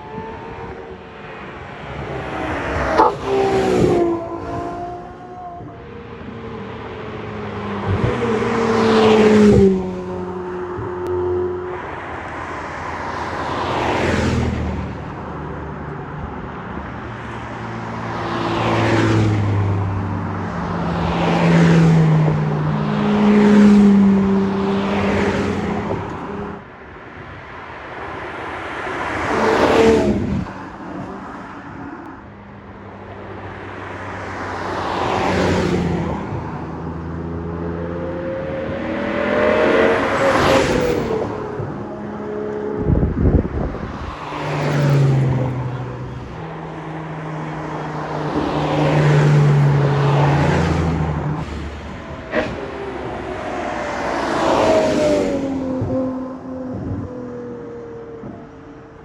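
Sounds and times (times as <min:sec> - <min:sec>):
sports cars driving past: 0:00.0 - 0:59.0.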